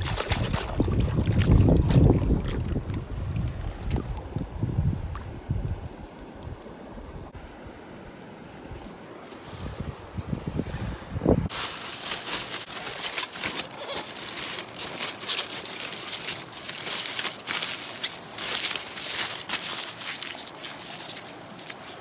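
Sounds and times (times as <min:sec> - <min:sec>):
crinkling and crumpling: 0:11.5 - 0:22.0.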